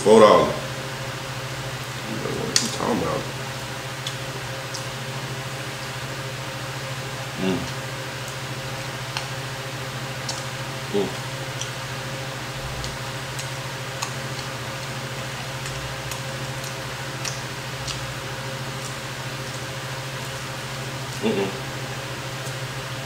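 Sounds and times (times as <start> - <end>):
low steady hum: 0.0 - 23.0
wet mouth clicks: 4.0 - 4.9, 10.2 - 10.5, 15.6 - 18.1
short vocal sound: 7.4 - 7.8, 10.9 - 11.2, 21.2 - 21.7
crunchy chewing: 10.1 - 23.0.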